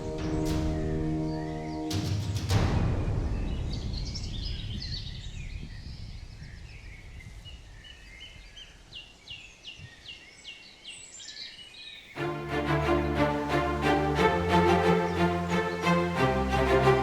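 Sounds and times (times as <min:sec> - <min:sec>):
small birds chirping and singing: 0:00.0 - 0:02.3, 0:03.4 - 0:17.0
deep boom: 0:02.7 - 0:06.1.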